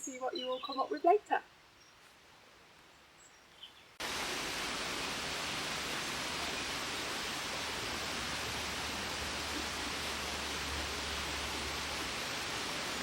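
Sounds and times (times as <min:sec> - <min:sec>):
steady rushing noise: 0:04.0 - 0:13.0.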